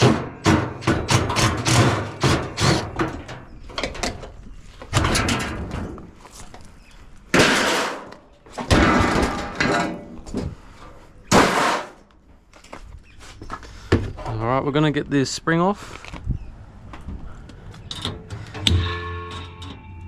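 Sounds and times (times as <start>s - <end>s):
sheet metal clanging: 0.0s - 4.3s, 7.3s - 10.2s, 17.9s - 20.0s
quiet metal rattling: 0.0s - 6.2s.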